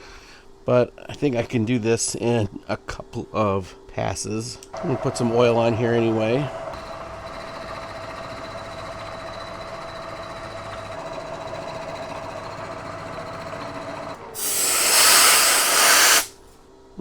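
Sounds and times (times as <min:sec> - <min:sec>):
milling machine humming: 0:04.7 - 0:16.3
loud even hiss: 0:14.4 - 0:16.5.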